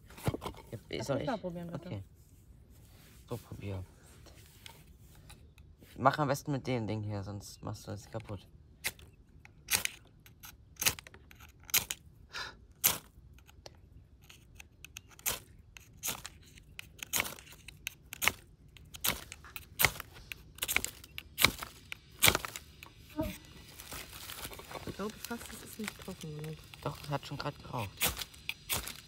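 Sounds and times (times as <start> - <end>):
striker scraping fire steel: 12.8 - 13.6, 14.2 - 29.0.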